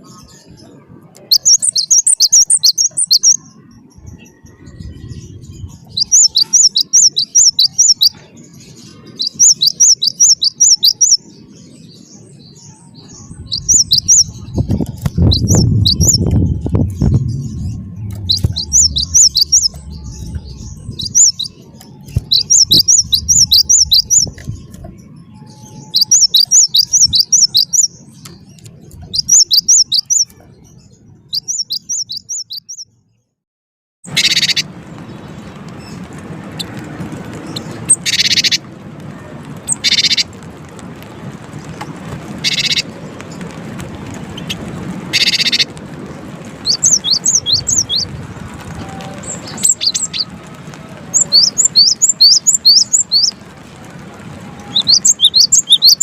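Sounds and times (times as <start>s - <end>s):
bird singing sharp repeated notes: 0.0s - 33.0s, 34.1s - 35.5s, 37.6s - 38.6s, 42.4s - 42.9s, 45.2s - 45.7s, 46.7s - 48.1s, 51.2s - 53.4s, 54.7s - 56.0s
harsh buzzy bird calls: 44.4s - 45.7s.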